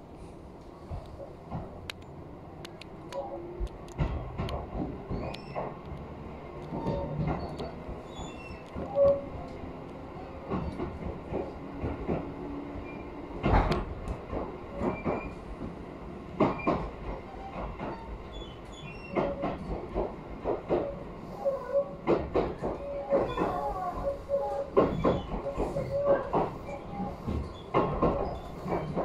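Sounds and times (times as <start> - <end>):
train running rumble: 0.0 - 29.0
wheels clacking over rail joints: 21.6 - 29.0.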